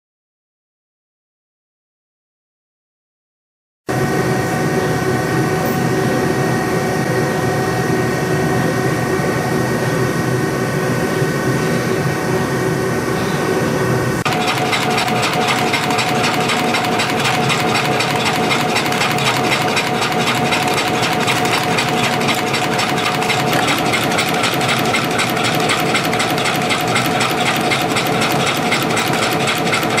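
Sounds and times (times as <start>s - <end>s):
machine whine: 3.9s - 30.0s
fast even rattle: 14.2s - 30.0s
spring coiling machine running: 14.2s - 30.0s.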